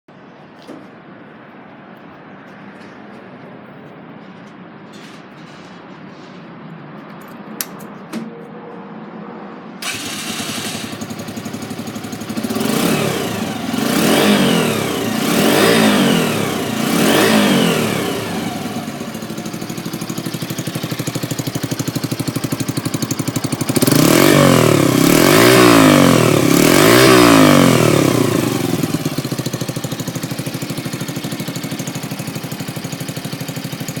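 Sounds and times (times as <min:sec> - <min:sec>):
motorcycle engine idling and revving: 0:07.1 - 0:34.0.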